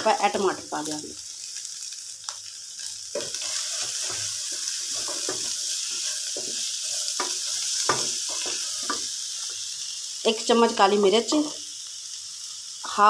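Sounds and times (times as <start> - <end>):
vegetables sizzling in a pan: 0.0 - 13.0
wooden spatula scraping: 3.2 - 9.1.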